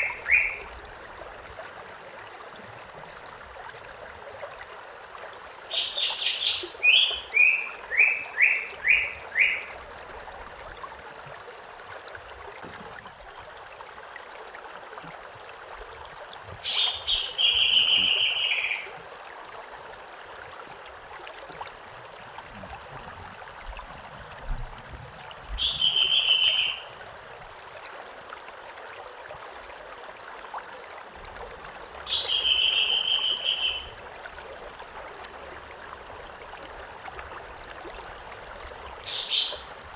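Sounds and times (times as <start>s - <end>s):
songbird singing: 0.0s - 0.7s, 5.7s - 9.8s, 16.6s - 18.9s, 25.6s - 26.9s, 32.0s - 34.0s, 39.0s - 39.8s
flowing stream: 0.0s - 39.9s.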